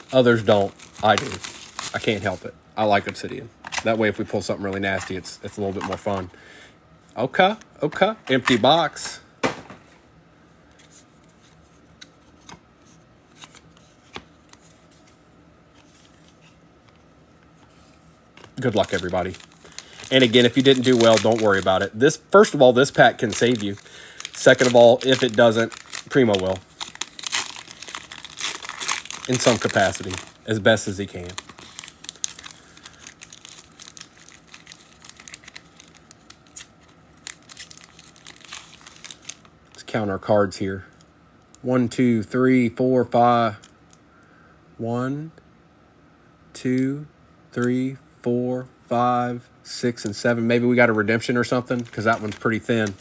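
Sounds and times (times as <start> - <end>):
wrapper crinkling and tearing: 0.0 - 4.1, 5.0 - 6.3, 18.4 - 39.5, 51.5 - 53.0
trading card packs being handled: 0.0 - 6.4, 7.1 - 10.0, 10.8 - 39.5, 50.0 - 53.0.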